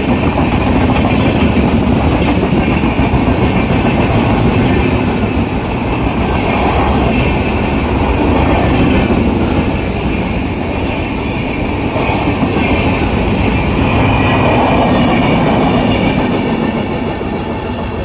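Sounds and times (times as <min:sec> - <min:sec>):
train wheels clattering on rails: 0:00.0 - 0:18.0.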